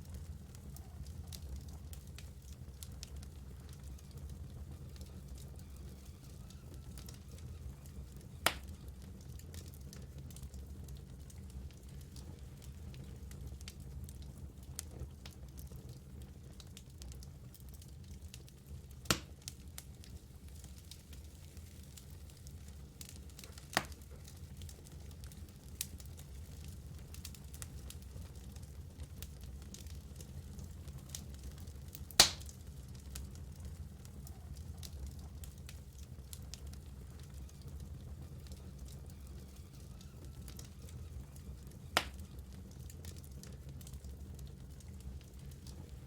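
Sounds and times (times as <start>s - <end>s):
fire crackling: 0.0s - 46.0s.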